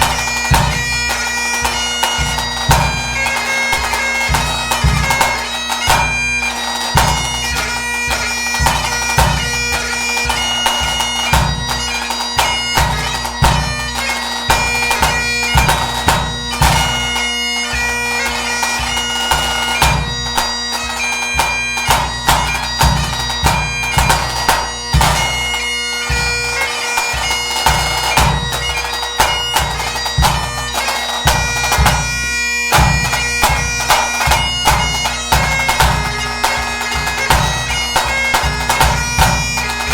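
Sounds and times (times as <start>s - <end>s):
bagpipe playing a tune: 0.0s - 39.9s.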